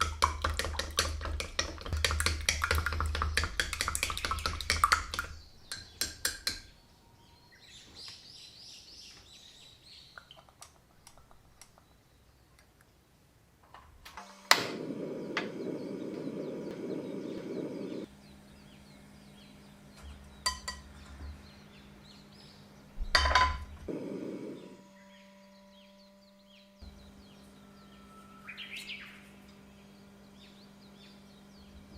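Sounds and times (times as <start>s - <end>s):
low hum: 14.2s - 31.9s
low rushing noise: 14.6s - 18.1s
utensils clinking against dishes: 20.4s - 20.9s.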